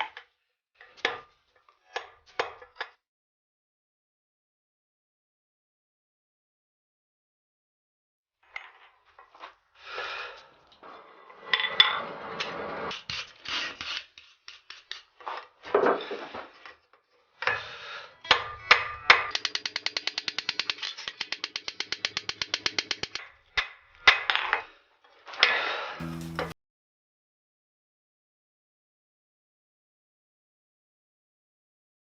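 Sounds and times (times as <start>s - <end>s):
hand tools scraping on metal: 10.0s - 15.3s
ratchet clicks: 19.3s - 23.2s.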